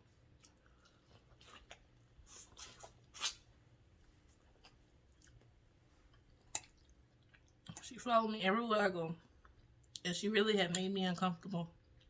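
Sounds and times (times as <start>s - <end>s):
chewing mouth clicks and smacks: 4.5s - 5.5s, 6.1s - 7.9s.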